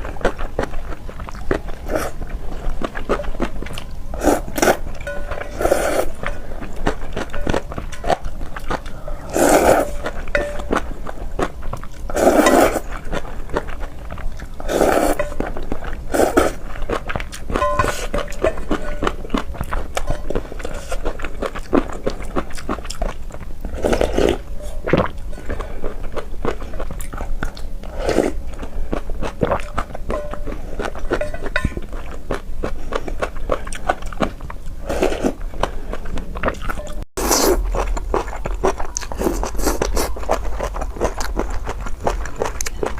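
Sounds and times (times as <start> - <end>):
wet chewing: 0.0 - 42.9.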